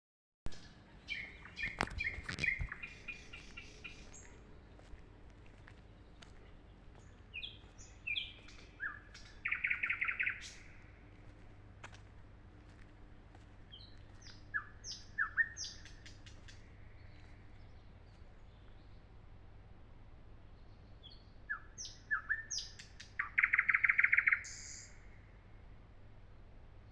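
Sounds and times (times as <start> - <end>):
nightingale singing: 0.5 - 5.0, 6.0 - 10.9, 13.7 - 17.9, 21.0 - 25.0.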